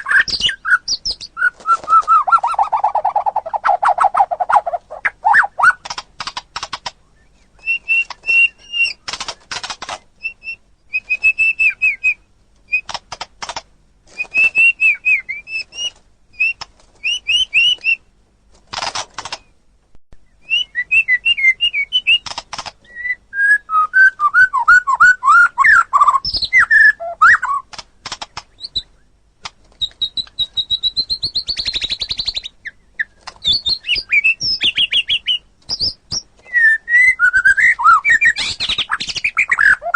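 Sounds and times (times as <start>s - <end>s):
bird singing whistled phrases: 0.0s - 5.8s, 7.2s - 9.0s, 10.2s - 12.8s, 14.2s - 18.0s, 20.2s - 22.2s, 22.8s - 27.7s, 29.9s - 39.9s.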